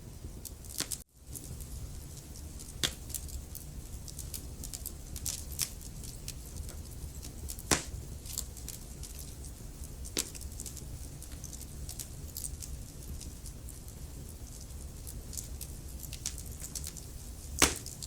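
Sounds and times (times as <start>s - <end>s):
low rumble of flames: 0.0s - 18.0s
wood fire crackling: 0.0s - 18.0s.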